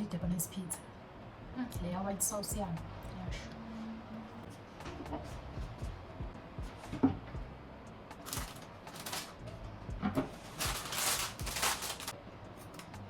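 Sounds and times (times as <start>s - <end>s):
rustling: 8.2s - 9.5s, 10.2s - 12.9s.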